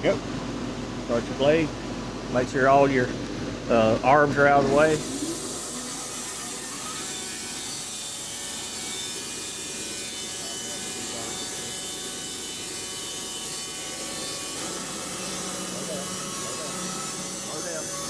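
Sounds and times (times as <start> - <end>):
band sawmill sawing a log: 4.6 - 18.0.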